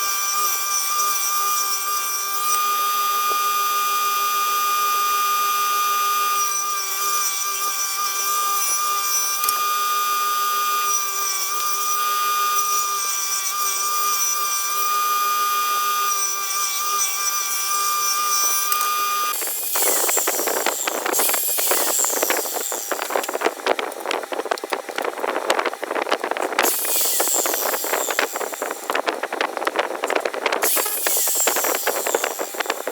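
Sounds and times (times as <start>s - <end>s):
power tool motor whining: 0.0s - 32.9s
tool rasping wood: 10.6s - 24.2s, 25.1s - 32.9s.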